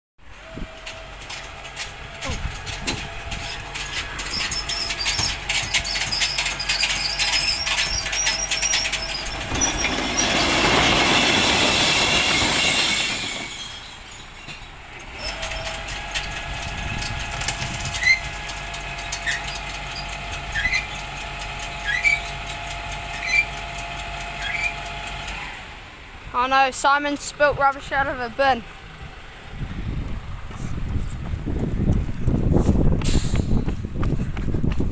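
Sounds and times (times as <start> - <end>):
truck engine running: 0.2 - 34.9
truck lifting gear clattering and squealing: 0.4 - 27.0.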